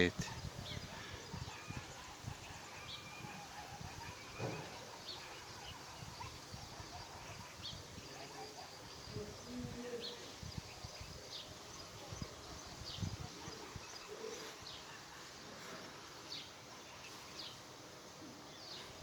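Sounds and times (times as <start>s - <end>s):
wind rumbling on microphone: 0.1s - 4.8s, 5.5s - 14.4s.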